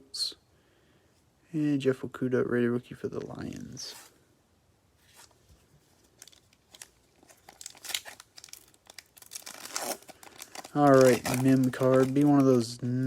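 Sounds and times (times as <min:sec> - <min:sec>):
cards being handled: 0:05.0 - 0:13.0
foil wrapper crinkling and tearing: 0:06.0 - 0:12.8.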